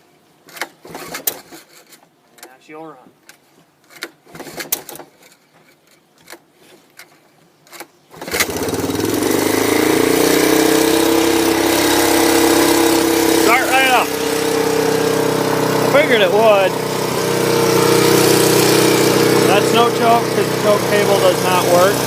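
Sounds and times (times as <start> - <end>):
engine starting and idling fast: 0.6 - 1.9, 4.0 - 5.3, 8.1 - 22.0.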